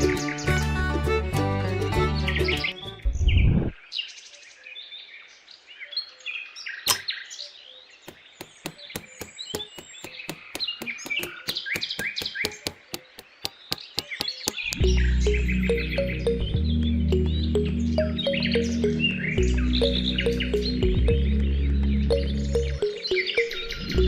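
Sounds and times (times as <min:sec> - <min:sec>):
small birds chirping: 0:00.0 - 0:01.2, 0:01.8 - 0:24.0
sharp clicks or taps: 0:08.1 - 0:15.0.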